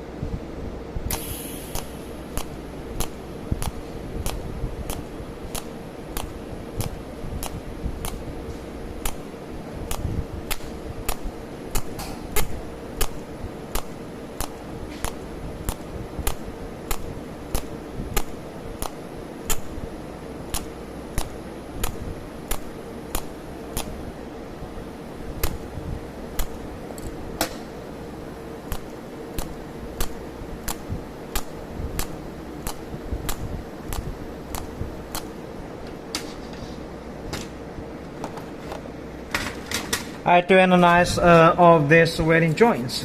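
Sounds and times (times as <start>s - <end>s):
steady machine hum: 0.0s - 43.0s
welding pulse ticks: 1.1s - 24.2s, 25.3s - 27.6s, 28.2s - 35.4s.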